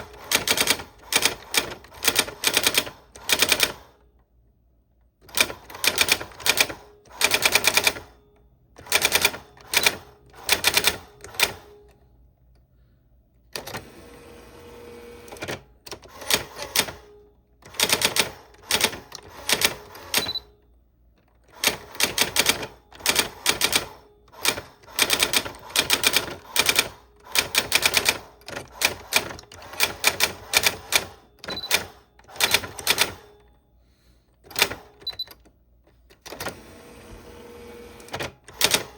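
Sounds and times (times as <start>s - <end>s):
typewriter keys clacking: 0.0s - 3.8s, 17.6s - 20.4s, 21.4s - 33.3s, 38.1s - 38.9s
typewriter rattle: 0.0s - 3.9s, 5.2s - 8.1s, 8.8s - 11.6s, 17.6s - 20.4s, 21.4s - 33.3s, 34.5s - 35.3s, 38.1s - 38.9s.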